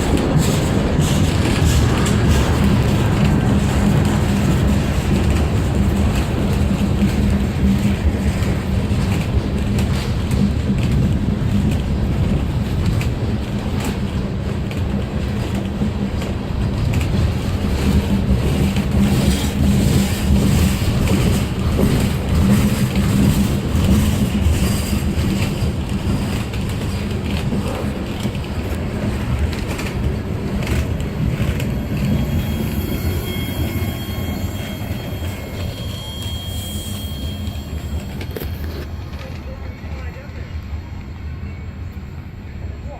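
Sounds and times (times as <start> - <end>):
freight train rumbling past: 0.0 - 42.9.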